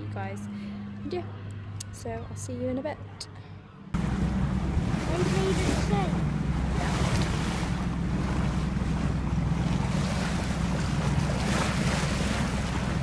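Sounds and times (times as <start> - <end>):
boat engine hum: 0.0 - 13.0
water rushing: 4.0 - 13.0
wind buffeting microphone: 4.0 - 13.0.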